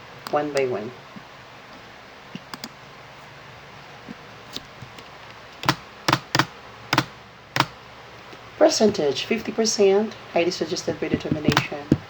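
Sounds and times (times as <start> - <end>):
computer keys clicking: 5.6 - 7.8, 11.1 - 12.0.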